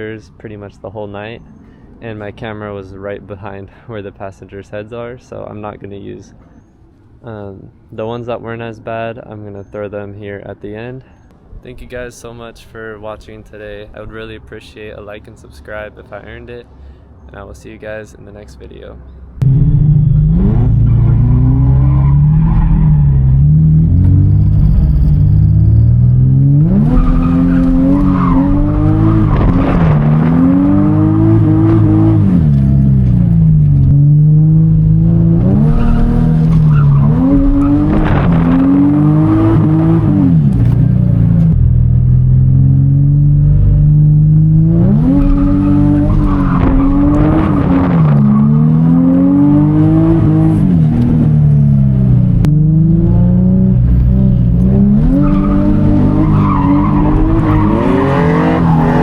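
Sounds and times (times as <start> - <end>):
car engine revving: 19.4 - 59.0
tyres skidding: 19.4 - 59.0.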